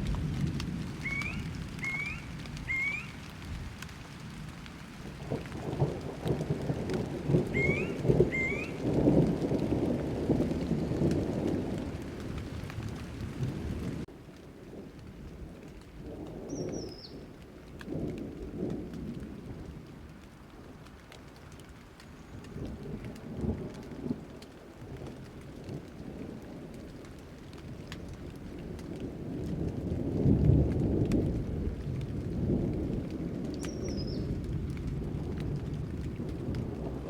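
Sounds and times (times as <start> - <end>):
thunder rumbling: 0.0 - 20.8, 22.5 - 37.0
raindrops ticking: 0.0 - 37.0
high falling chirp: 1.0 - 3.1, 7.6 - 8.8.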